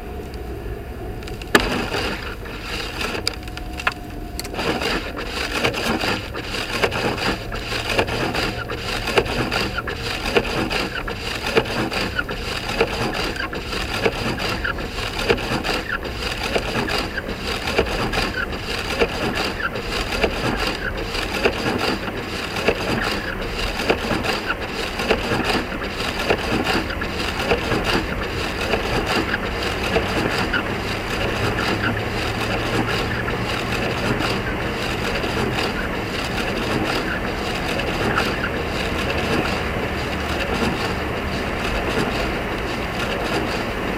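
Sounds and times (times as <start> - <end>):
low hum: 0.0 - 18.7
road noise: 0.0 - 43.9
tyres crunching snow and ice: 1.2 - 43.9.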